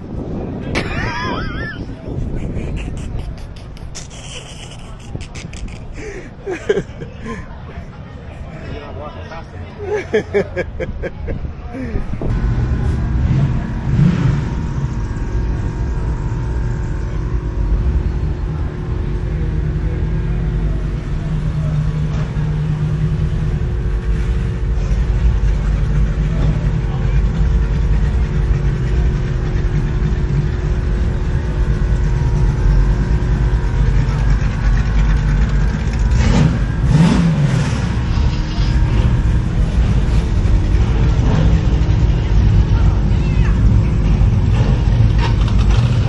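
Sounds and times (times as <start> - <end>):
car engine running: 0.0 - 46.0
car engine revving: 12.2 - 46.0.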